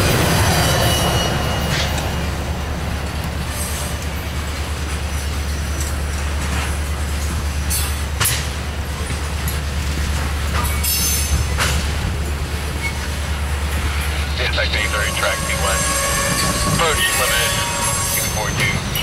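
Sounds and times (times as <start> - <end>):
freight train rumbling past: 0.0 - 19.0
high wheel squeals: 13.9 - 19.0.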